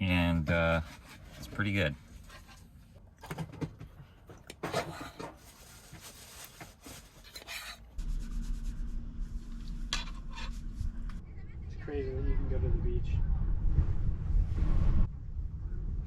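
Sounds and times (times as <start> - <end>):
low rumble with faint hum: 7.7 - 16.0.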